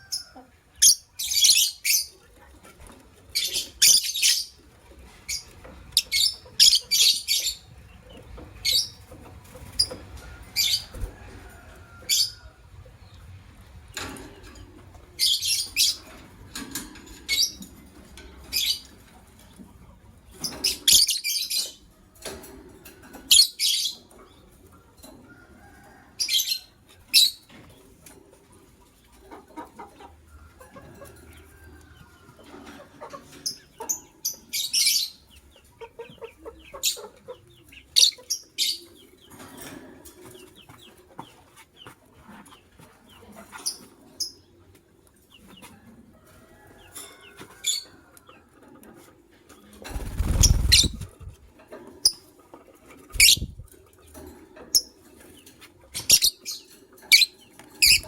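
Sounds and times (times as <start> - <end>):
lovebirds chirping: 3.3 - 4.6, 5.3 - 9.0, 56.0 - 58.0.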